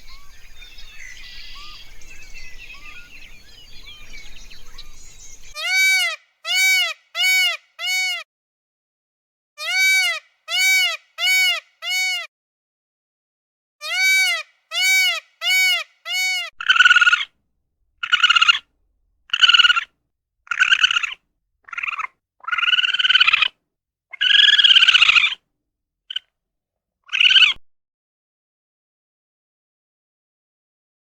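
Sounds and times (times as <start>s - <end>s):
harsh animal calls: 13.8s - 17.3s, 18.0s - 18.6s, 19.3s - 19.9s, 20.5s - 23.5s, 24.1s - 25.4s, 27.1s - 27.6s
short pitched animal calls: 13.8s - 17.3s, 18.0s - 18.6s, 19.3s - 19.9s, 20.5s - 23.5s, 24.1s - 25.4s, 27.1s - 27.6s.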